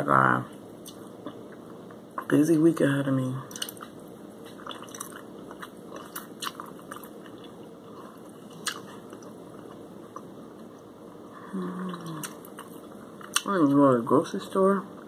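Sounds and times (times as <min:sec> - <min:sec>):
crunchy chewing mouth sounds: 0:03.5 - 0:10.9, 0:11.5 - 0:13.5
person humming briefly: 0:11.4 - 0:12.2.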